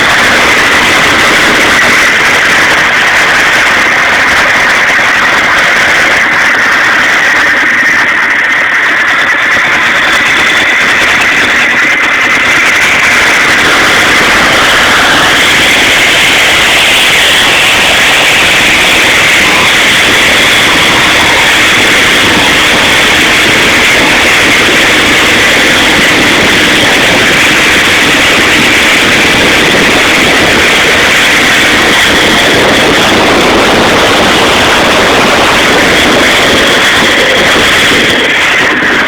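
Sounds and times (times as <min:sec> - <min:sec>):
boat engine rushing hiss: 0:00.0 - 0:39.0.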